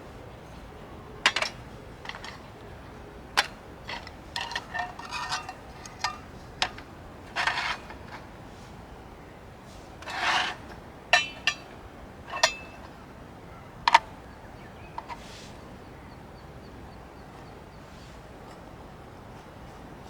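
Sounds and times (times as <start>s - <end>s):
scraping rustle: 0.5s - 13.0s, 15.0s - 15.6s
small objects clicking and knocking: 1.3s - 2.5s.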